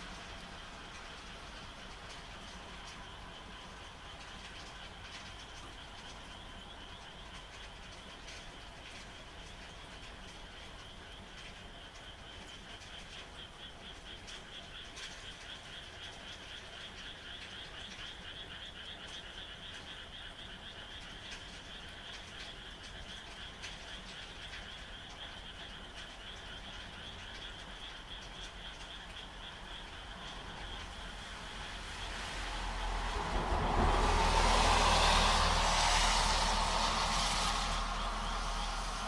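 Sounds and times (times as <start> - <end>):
frogs trilling in chorus: 9.5 - 39.0
rain hissing: 27.4 - 39.0.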